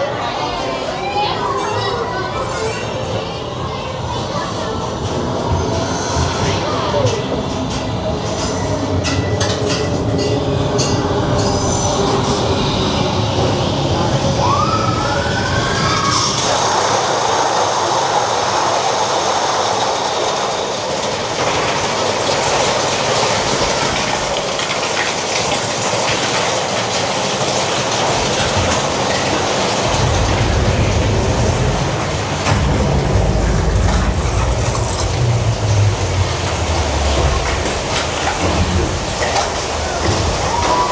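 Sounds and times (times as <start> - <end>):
roller coaster wheels clattering: 0.0 - 40.9
deep rumble: 29.7 - 40.9.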